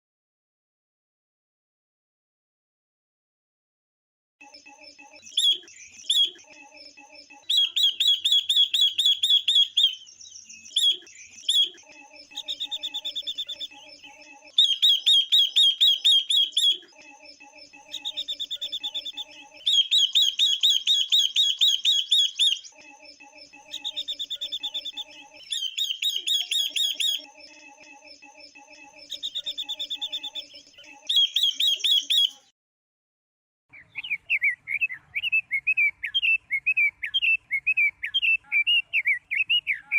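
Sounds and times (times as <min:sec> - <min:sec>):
birds chattering trills: 0:04.5 - 0:32.5.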